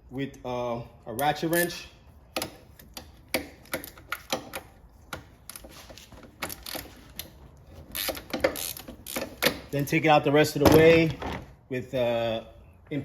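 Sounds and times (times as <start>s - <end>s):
ratchet wrench clicking: 6.4s - 9.7s.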